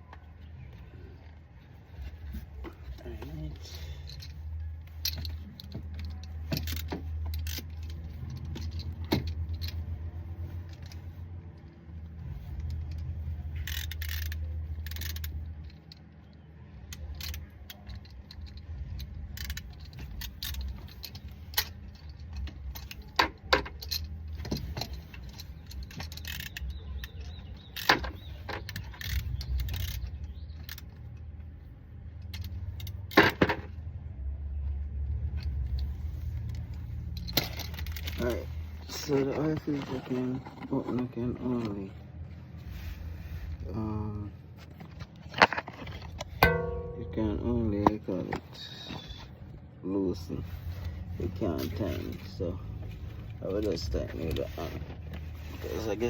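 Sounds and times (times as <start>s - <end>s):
metal tools clinking: 2.3s - 11.2s, 16.9s - 31.3s, 35.3s - 40.6s, 44.8s - 49.3s
steady low rumble: 31.2s - 56.0s.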